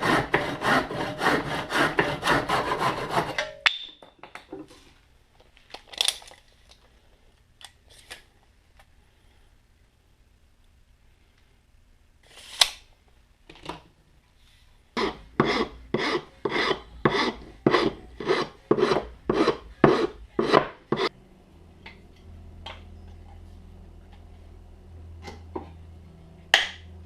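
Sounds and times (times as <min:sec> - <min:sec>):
file rasping strokes: 0:00.0 - 0:03.4, 0:15.0 - 0:21.1
low steady hum: 0:00.0 - 0:27.0.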